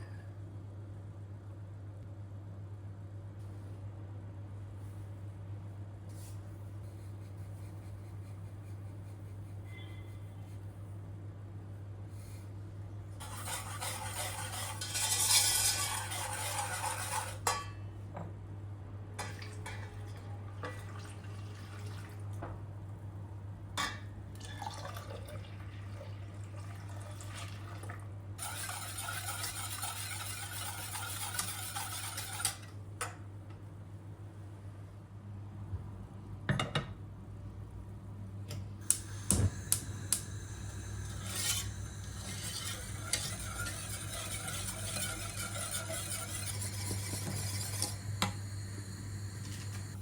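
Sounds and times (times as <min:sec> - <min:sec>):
liquid pouring: 0:20.7 - 0:22.2, 0:24.4 - 0:28.0.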